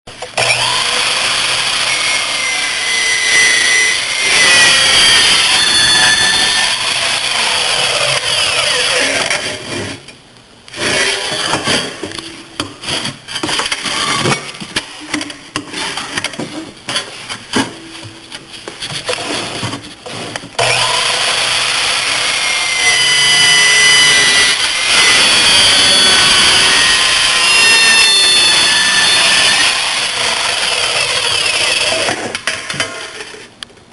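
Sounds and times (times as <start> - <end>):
miter saw cutting metal: 0.3 - 10.0, 10.7 - 12.1, 20.6 - 33.4.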